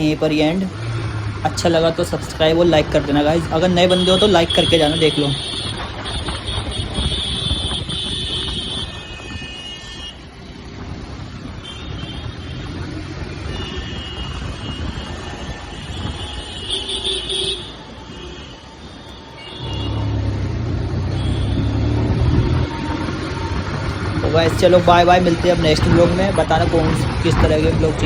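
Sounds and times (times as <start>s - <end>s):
motorcycle engine rumble: 0.0s - 28.0s
road noise: 0.0s - 28.0s.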